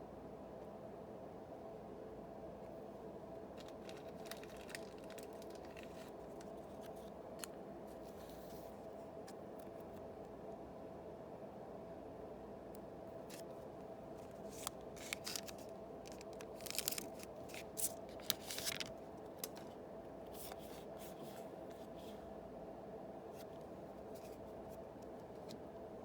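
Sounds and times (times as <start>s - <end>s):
low background hum: 0.0s - 26.0s
card pack crinkling and clicking: 3.6s - 8.1s, 14.2s - 20.7s.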